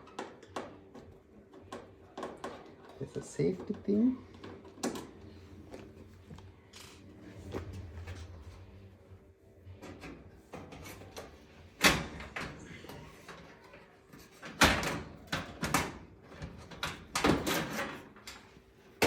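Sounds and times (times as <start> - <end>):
oven parts knocking and rattling: 14.2 - 18.5.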